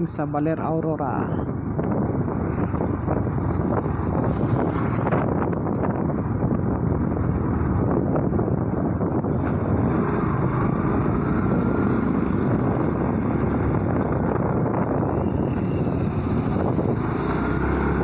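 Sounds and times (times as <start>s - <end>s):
wind rushing over microphone: 0.0s - 18.0s
motorcycle engine running: 3.3s - 16.6s.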